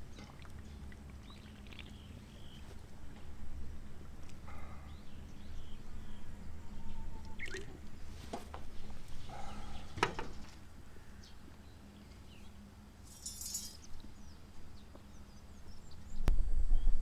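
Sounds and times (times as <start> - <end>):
bird chirps: 4.9 - 7.8
light clink: 13.0 - 14.0.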